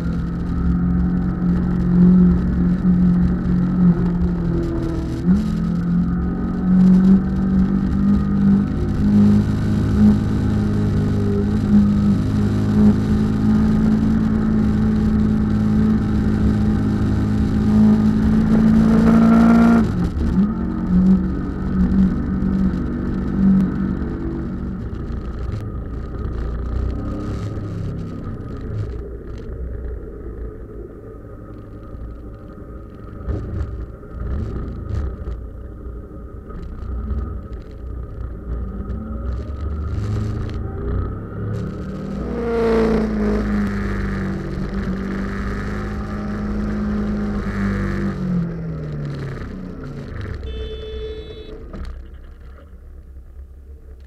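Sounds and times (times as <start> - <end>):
motorcycle engine running: 49.1 - 52.8.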